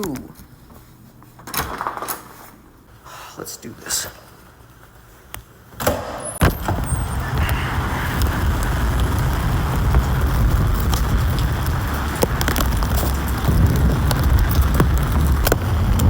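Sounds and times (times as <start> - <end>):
storm wind and rain rushing: 6.4 - 16.0
wind buffeting microphone: 6.6 - 16.0.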